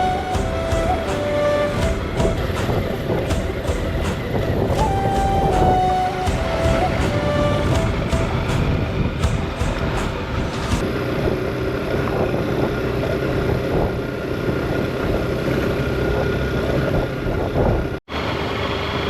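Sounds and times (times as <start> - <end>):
wind noise on microphone: 0.0 - 18.0
motorcycle engine running: 6.3 - 18.0.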